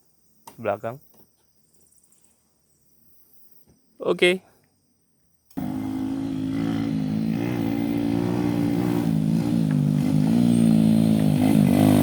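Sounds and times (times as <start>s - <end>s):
motorcycle engine at low revs: 5.5s - 12.0s.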